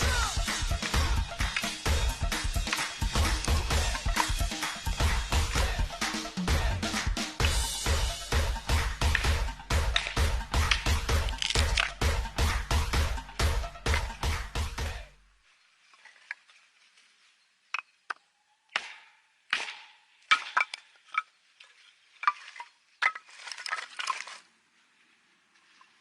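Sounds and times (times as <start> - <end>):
objects knocking and clicking: 9.0 - 12.0
rustle: 15.4 - 18.1, 20.9 - 26.0.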